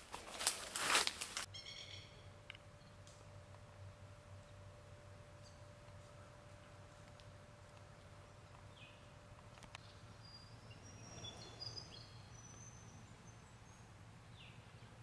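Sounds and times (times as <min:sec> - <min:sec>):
low steady hum: 0:01.4 - 0:15.0
short high whistled calls: 0:01.5 - 0:02.2
faint bird chirps: 0:01.5 - 0:03.0, 0:09.8 - 0:14.6.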